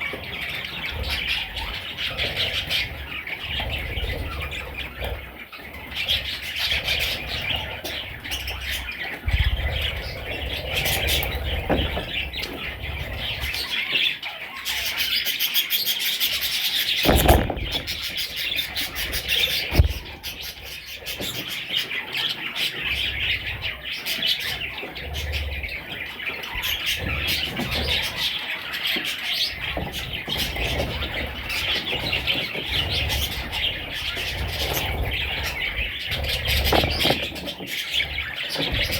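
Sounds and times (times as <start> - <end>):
budgerigars chirping and chattering: 0.0 - 38.9
sharp knocks: 17.0 - 18.2.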